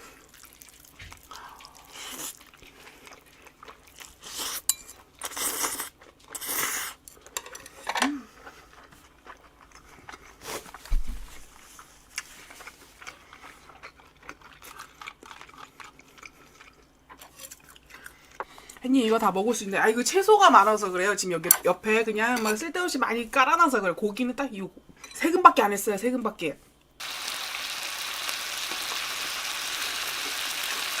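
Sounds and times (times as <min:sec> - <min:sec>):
crunching and chewing food: 0:00.0 - 0:07.3, 0:08.2 - 0:19.0.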